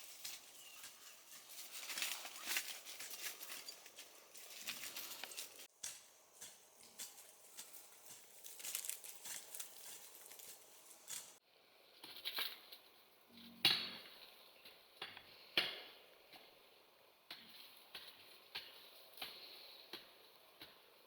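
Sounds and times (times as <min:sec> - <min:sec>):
light clicks and crackling: 0:00.0 - 0:11.4.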